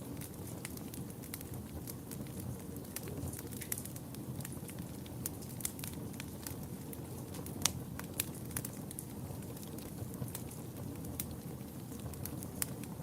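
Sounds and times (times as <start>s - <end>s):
fire crackling and popping: 0.0s - 13.0s
low rumble of flames: 0.0s - 13.0s.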